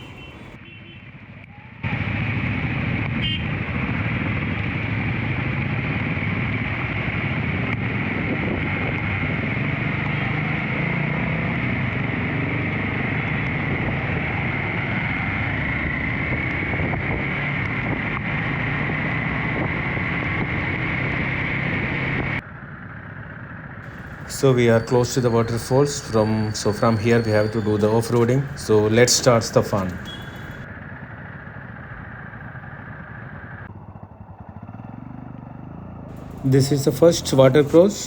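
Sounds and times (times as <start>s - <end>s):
wind noise on microphone: 7.8s - 9.6s, 15.7s - 20.7s
motorcycle engine running: 22.4s - 38.0s.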